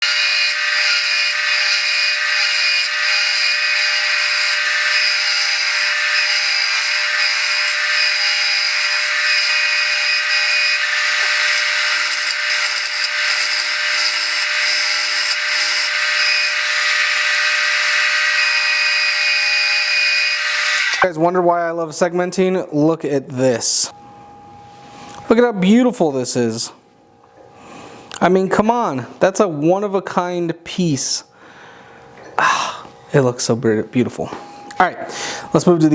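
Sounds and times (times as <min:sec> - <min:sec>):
tool scraping spinning wood: 0:00.0 - 0:21.0
wood lathe machine whine: 0:00.0 - 0:21.0.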